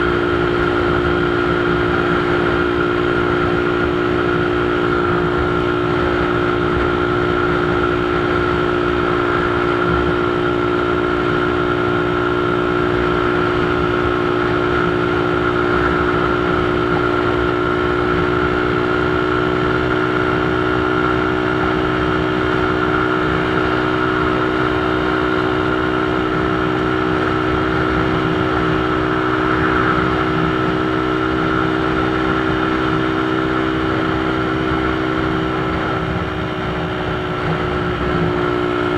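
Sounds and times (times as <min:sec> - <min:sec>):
motorcycle engine droning: 0:00.0 - 0:38.9
rush of noise: 0:21.4 - 0:38.9.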